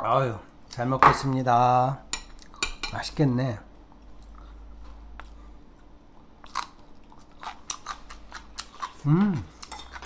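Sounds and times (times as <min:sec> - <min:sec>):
crunching and chewing kimchi: 0:06.2 - 0:10.0
person humming mm: 0:09.0 - 0:09.6.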